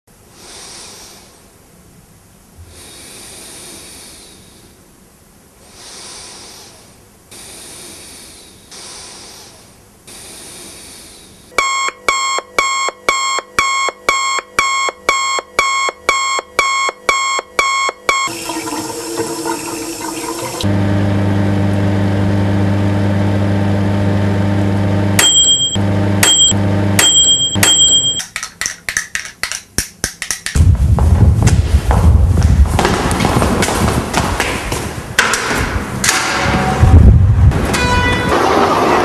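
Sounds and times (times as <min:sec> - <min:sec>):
electronic beeping: 0:25.2 - 0:28.3.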